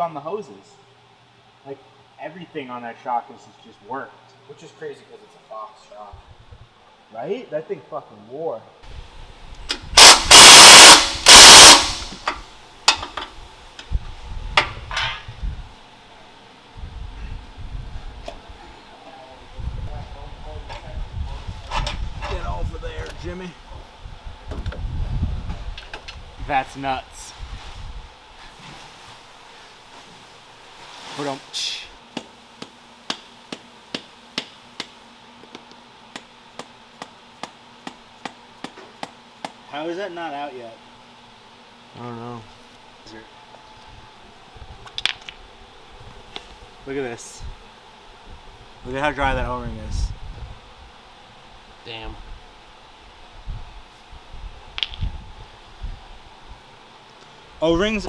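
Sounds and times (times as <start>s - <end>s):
impact wrench hammering: 10.0s - 13.2s, 32.1s - 39.6s.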